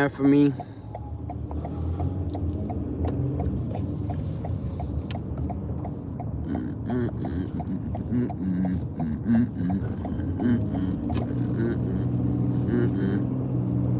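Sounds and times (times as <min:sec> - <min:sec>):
engine and road rumble: 0:00.0 - 0:13.9
light ticks: 0:00.5 - 0:06.4.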